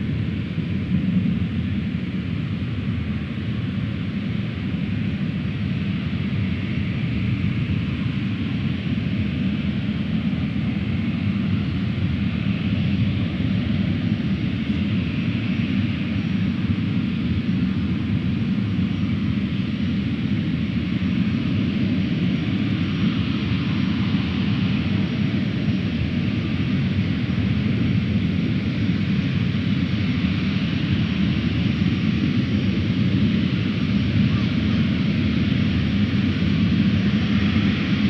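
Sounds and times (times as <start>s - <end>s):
jet airliner engines rumbling: 0.0s - 38.0s.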